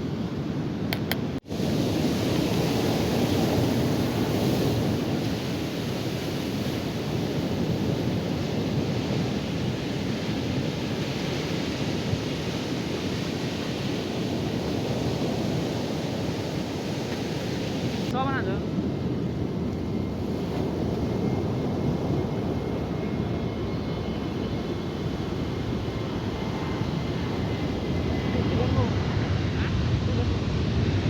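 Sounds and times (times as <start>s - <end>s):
wind on microphone: 0.0s - 31.0s
ocean surf breaking: 1.0s - 18.6s.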